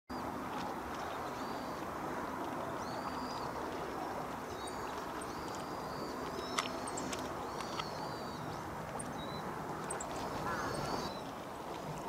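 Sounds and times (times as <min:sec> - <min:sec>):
steady low water rush: 0:00.1 - 0:12.0
bird high-pitched calls: 0:02.8 - 0:11.3.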